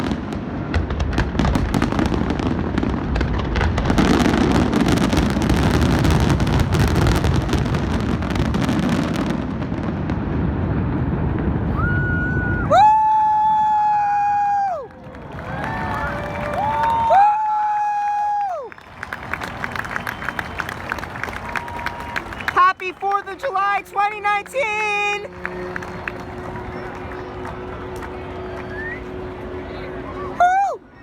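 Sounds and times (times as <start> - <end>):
fireworks crackling bursts: 0.0 - 11.7, 18.8 - 30.4
steady rumble: 24.6 - 30.4.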